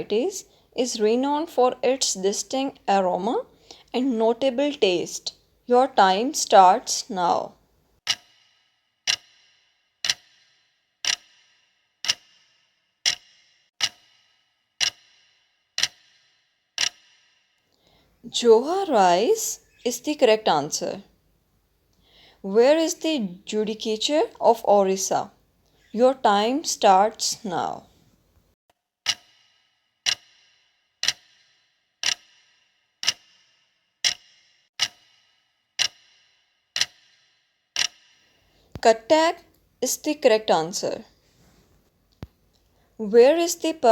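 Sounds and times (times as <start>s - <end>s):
clock ticks with short ring: 8.0s - 17.6s, 29.0s - 38.3s.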